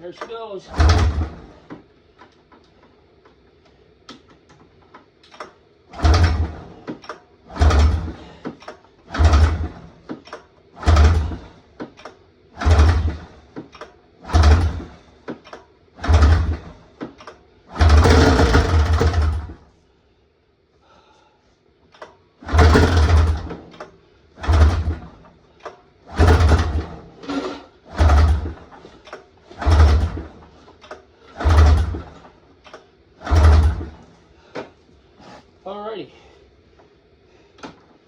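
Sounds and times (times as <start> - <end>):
snowmobile engine cranking: 0.0 - 2.4, 4.9 - 19.7, 21.9 - 35.5
pull-start rope pulls: 0.2 - 1.8, 5.9 - 15.4, 16.0 - 19.6, 22.0 - 34.5.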